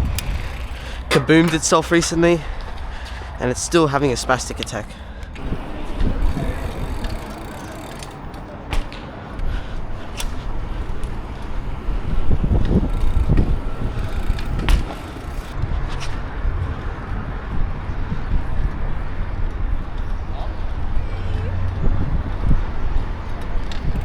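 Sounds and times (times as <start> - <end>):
wind and road noise: 0.0 - 24.0.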